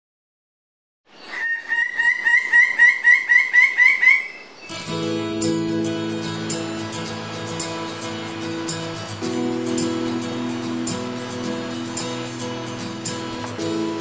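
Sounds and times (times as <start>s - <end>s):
bird calling repeated notes: 1.1s - 4.9s
music with sustained notes: 4.7s - 14.0s.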